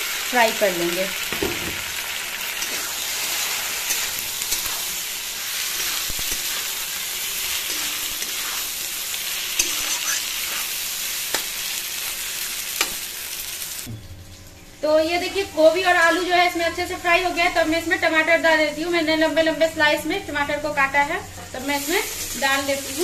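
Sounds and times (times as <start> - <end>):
vegetables sizzling in oil: 0.0 - 13.9, 14.7 - 23.0.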